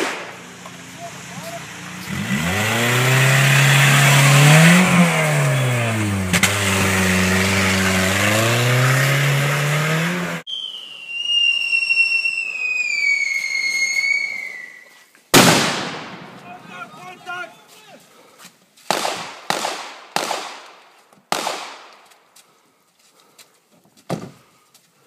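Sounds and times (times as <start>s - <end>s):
car engine revving: 0.3s - 10.5s
smoke grenade whistling: 10.5s - 16.1s.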